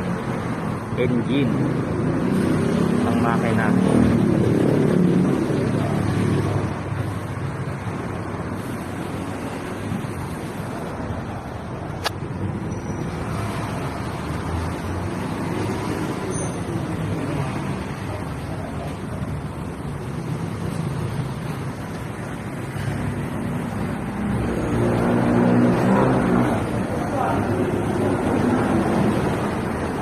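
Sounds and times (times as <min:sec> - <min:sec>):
sharp click: 0:12.0 - 0:12.2.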